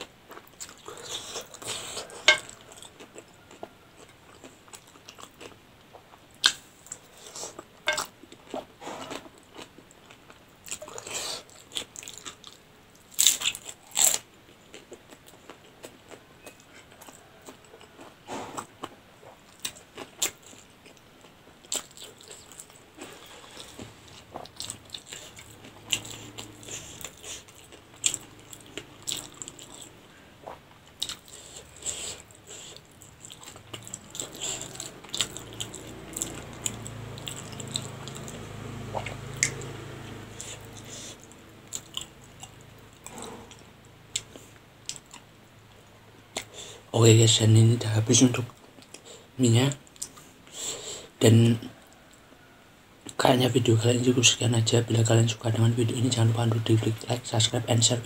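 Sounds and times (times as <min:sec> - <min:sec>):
chewing noodles: 0:00.0 - 0:45.3.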